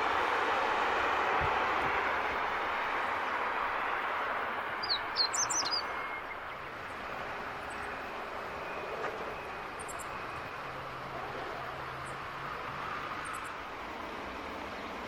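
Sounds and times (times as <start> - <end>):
background noise rush: 0.0 - 15.0
small bird chirping: 4.8 - 6.4.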